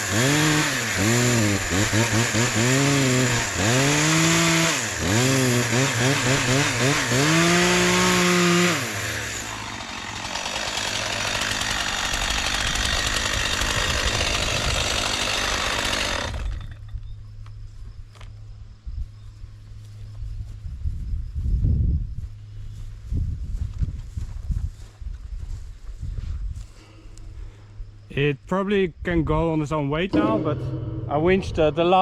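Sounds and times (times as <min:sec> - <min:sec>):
small petrol engine revving: 0:00.0 - 0:16.6.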